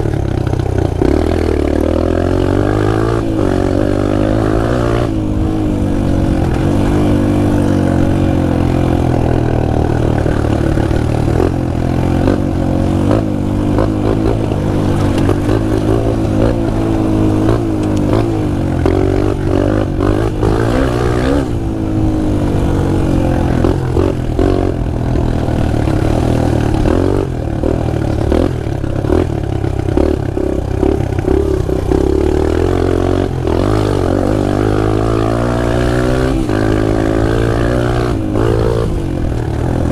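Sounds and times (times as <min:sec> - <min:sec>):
pit bike engine revving: 0:00.0 - 0:39.9
clatter: 0:06.3 - 0:21.3.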